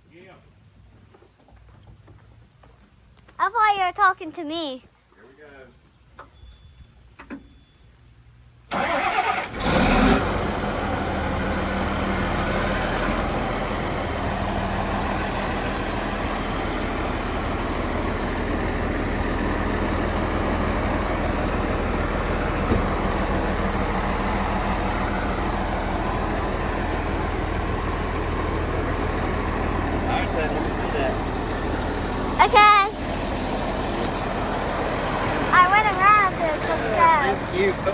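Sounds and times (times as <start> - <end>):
diesel engine starting and idling: 8.6 - 37.9.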